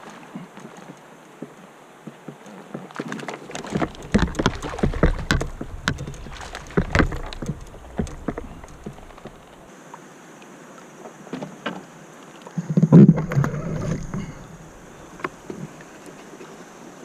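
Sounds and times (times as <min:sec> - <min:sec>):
knocks on a kayak: 0:03.6 - 0:09.4.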